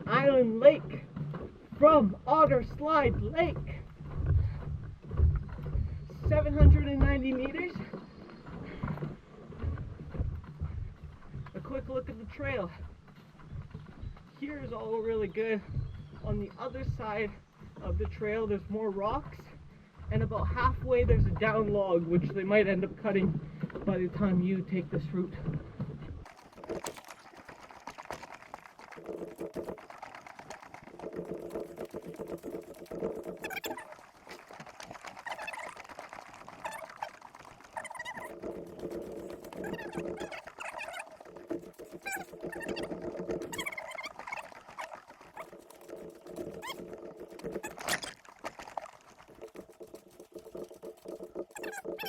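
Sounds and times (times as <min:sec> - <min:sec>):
footsteps and gear clattering: 0:00.0 - 0:22.4, 0:25.3 - 0:52.0.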